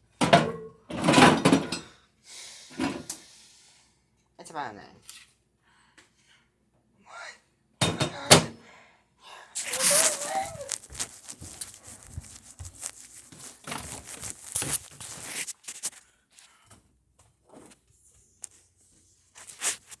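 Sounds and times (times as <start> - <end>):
objects rustling and knocking: 9.6 - 16.0.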